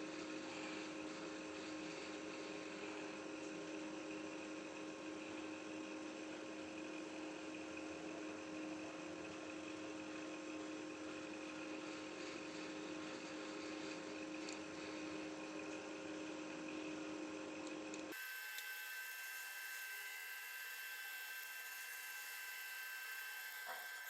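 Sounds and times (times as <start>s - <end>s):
electrical hum: 11.4s - 24.0s.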